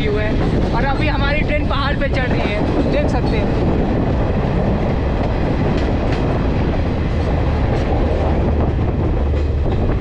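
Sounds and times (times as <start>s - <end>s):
train coaches rumbling on track: 0.0s - 10.0s.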